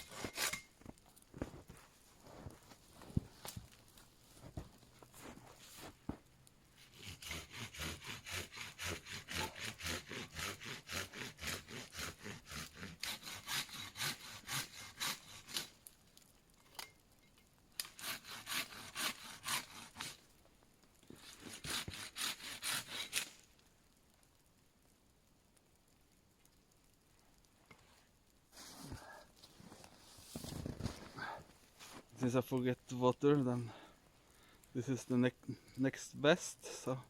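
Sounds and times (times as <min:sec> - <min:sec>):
hand saw cutting wood: 0:00.0 - 0:00.7, 0:06.8 - 0:15.7, 0:17.8 - 0:20.2, 0:21.2 - 0:23.4.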